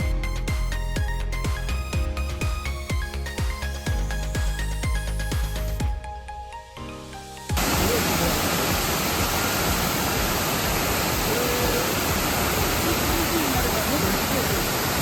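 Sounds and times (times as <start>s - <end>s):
music: 0.0s - 14.6s
waterfall rushing: 7.6s - 15.0s.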